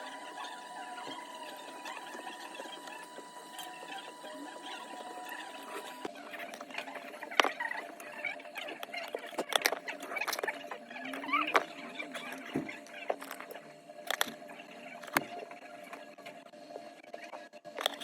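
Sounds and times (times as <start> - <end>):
steady electronic whine: 0.0 - 18.0
hand tools clicking and scratching: 1.0 - 14.4.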